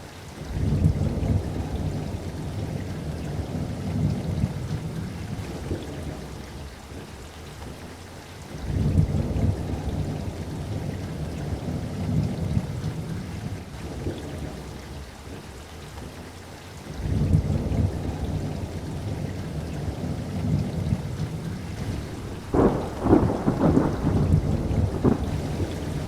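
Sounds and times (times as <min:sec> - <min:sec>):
steady rain: 0:00.0 - 0:26.0
low rolling thunder: 0:00.4 - 0:07.1, 0:08.5 - 0:15.1, 0:16.9 - 0:26.0
sharp thunderclaps: 0:19.9 - 0:26.0.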